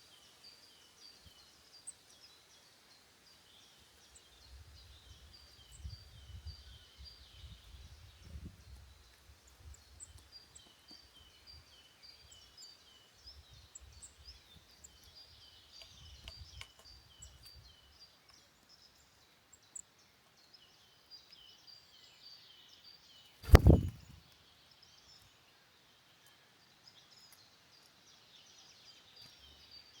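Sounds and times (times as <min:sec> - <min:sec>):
birds chirping and singing: 0:04.0 - 0:24.2
wind gusts on microphone: 0:04.5 - 0:09.9, 0:23.4 - 0:24.2
loud dull thump: 0:23.5 - 0:24.1.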